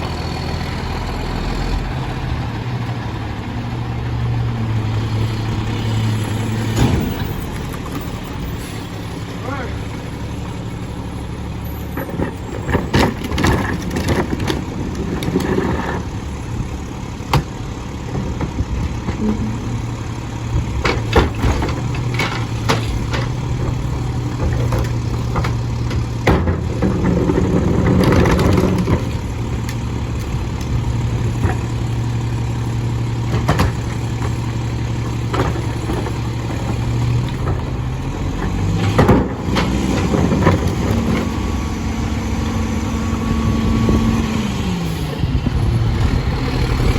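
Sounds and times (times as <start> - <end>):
diesel engine running: 0.0 - 46.9
metal clanks and knocks: 17.3 - 32.0, 33.2 - 41.4.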